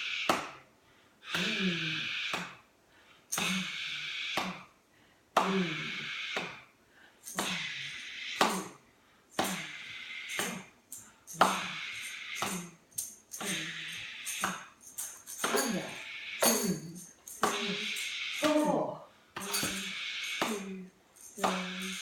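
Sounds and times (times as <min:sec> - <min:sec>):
percussion beat: 0:03.3 - 0:03.7, 0:07.2 - 0:08.7, 0:09.3 - 0:18.8, 0:19.4 - 0:22.0.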